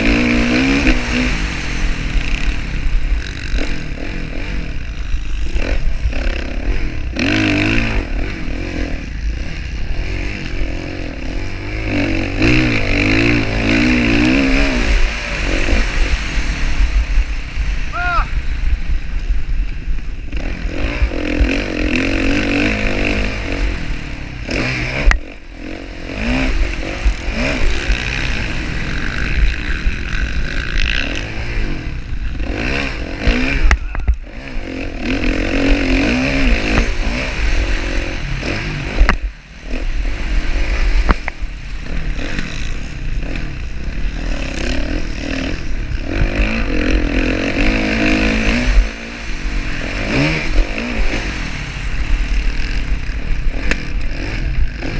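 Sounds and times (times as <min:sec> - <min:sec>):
motocross bike engines revving: 0:00.0 - 0:54.9.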